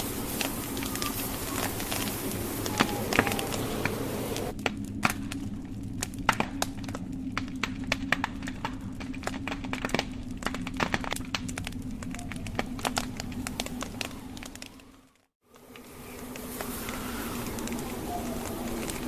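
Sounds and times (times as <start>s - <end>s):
steady hiss: 0.0s - 4.9s, 15.5s - 19.0s
wood fire crackling: 0.0s - 19.0s.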